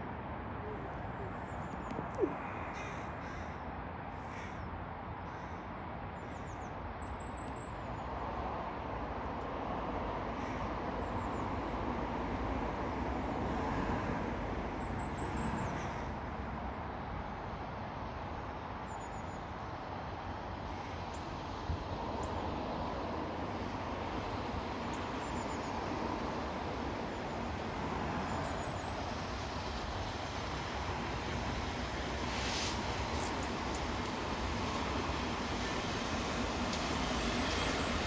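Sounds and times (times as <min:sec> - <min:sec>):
train wheels rumbling on rail: 0:21.4 - 0:38.0.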